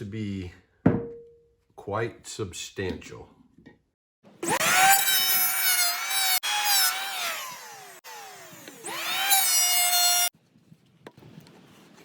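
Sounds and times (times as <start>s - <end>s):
power tool motor whining: 4.4s - 10.3s.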